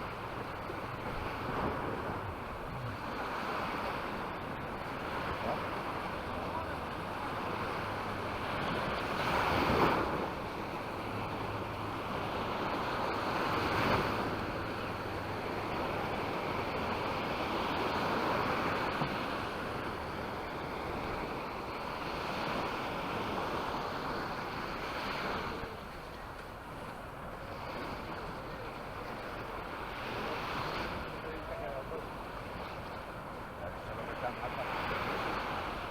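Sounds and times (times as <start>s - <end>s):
small waves breaking on beach: 0.0s - 35.9s.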